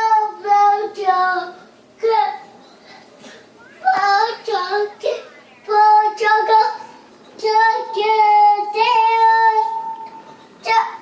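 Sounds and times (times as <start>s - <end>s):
toddler singing: 0.0s - 2.5s, 3.7s - 10.0s.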